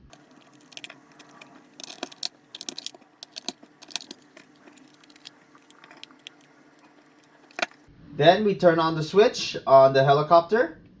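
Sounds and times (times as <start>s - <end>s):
batteries clicking into compartment: 0.0s - 7.9s.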